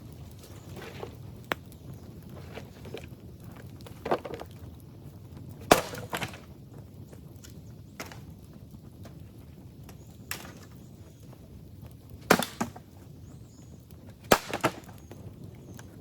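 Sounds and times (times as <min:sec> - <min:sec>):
dry bamboo cracking: 0:00.0 - 0:04.9, 0:05.6 - 0:06.6, 0:09.9 - 0:10.8, 0:12.2 - 0:13.0, 0:14.1 - 0:15.9.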